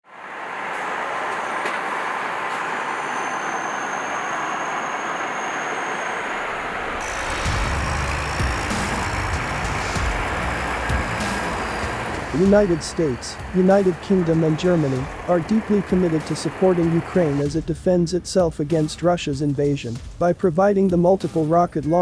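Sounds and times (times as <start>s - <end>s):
heavy vehicle running: 0.1s - 19.4s
deep engine rumble: 6.3s - 20.0s.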